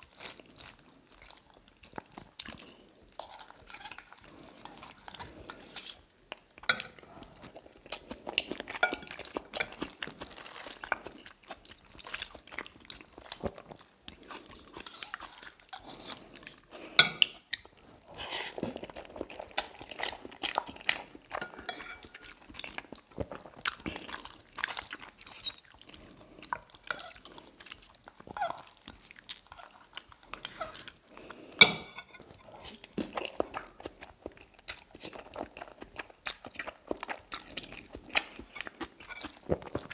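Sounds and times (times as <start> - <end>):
chewing and wet mouth sounds: 0.0 - 39.9
cutlery clinking on a plate: 6.7 - 7.0, 8.8 - 9.8, 17.0 - 17.3, 21.4 - 22.3, 31.6 - 32.3.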